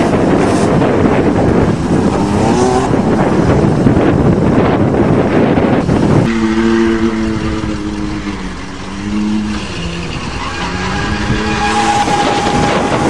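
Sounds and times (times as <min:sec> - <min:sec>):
wind rushing: 0:00.0 - 0:13.0
vehicle engine running: 0:05.9 - 0:11.6.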